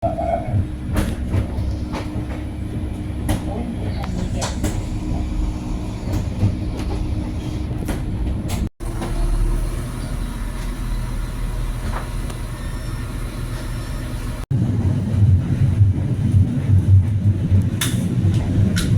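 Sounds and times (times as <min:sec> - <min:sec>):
train rumbling on track: 0:00.0 - 0:18.9
light clicks of train: 0:03.2 - 0:04.9, 0:06.1 - 0:07.1, 0:11.8 - 0:12.5, 0:16.8 - 0:18.9.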